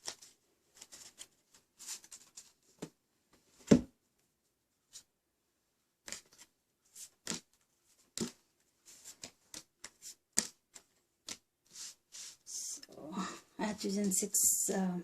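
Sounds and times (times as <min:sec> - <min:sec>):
cards slapping and sliding: 0:06.0 - 0:12.4.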